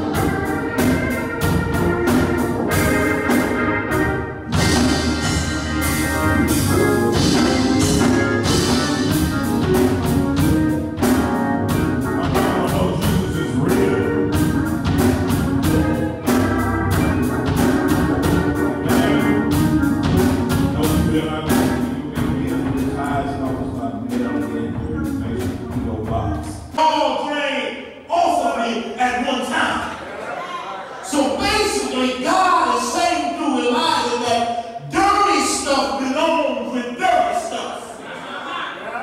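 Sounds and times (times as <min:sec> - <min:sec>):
percussion strikes: 0:00.0 - 0:26.8
church organ music: 0:00.0 - 0:29.2, 0:31.0 - 0:38.0.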